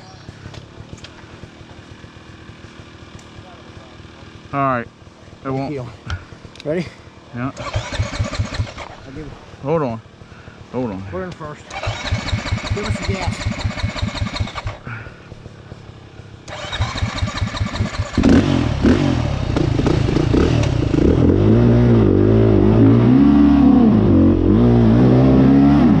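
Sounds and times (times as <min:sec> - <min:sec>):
dirt bike engine revving: 0:01.2 - 0:26.0.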